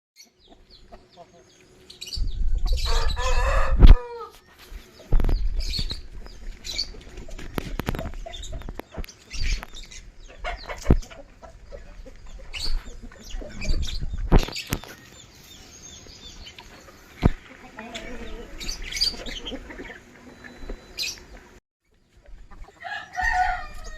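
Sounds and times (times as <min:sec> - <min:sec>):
chicken clucks: 0:00.2 - 0:01.6, 0:02.5 - 0:23.9
rooster crowing: 0:02.8 - 0:04.4, 0:22.8 - 0:23.9.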